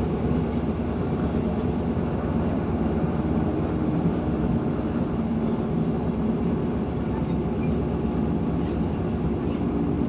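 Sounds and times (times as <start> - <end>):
diesel engine drone: 0.0 - 10.0
wheels rumbling on track: 0.0 - 10.0.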